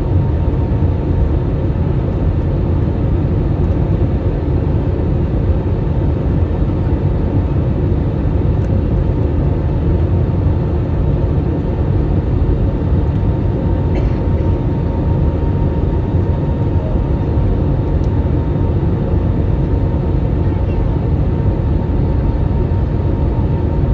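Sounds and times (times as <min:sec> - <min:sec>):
jet engines rumbling: 0:05.9 - 0:23.9.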